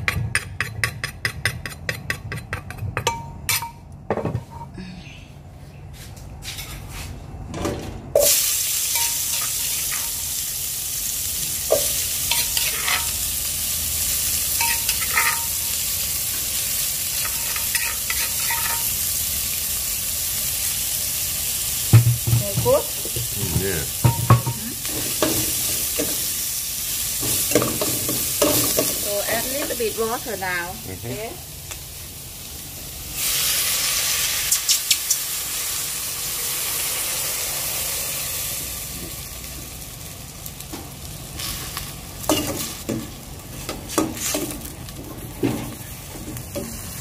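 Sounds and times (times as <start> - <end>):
paste sizzling in a pot: 8.2 - 47.0
metal spoon scraping a pot: 12.3 - 13.1, 17.2 - 18.9.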